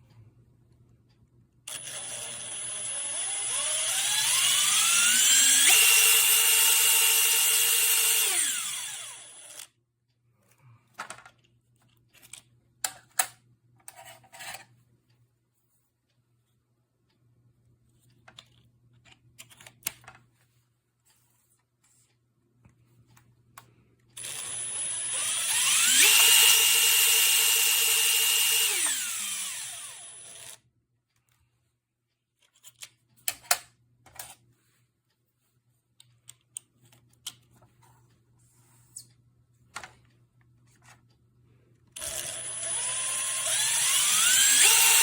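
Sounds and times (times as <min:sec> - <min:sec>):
impact driver motor whine: 0:01.8 - 0:09.6, 0:24.2 - 0:30.6, 0:42.0 - 0:45.0.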